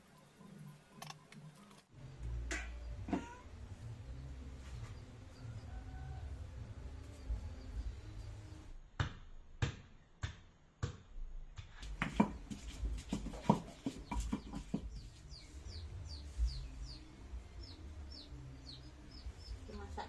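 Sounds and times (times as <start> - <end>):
chicks peeping: 13.2 - 19.7.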